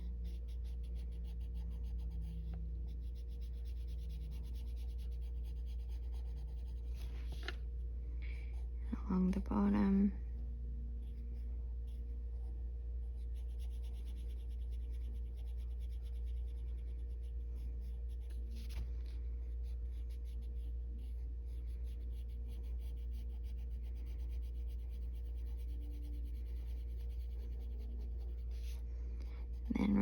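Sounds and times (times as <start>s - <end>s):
pencil shading on paper: 0.0s - 7.6s, 13.1s - 30.0s
steady low hum: 0.0s - 30.0s.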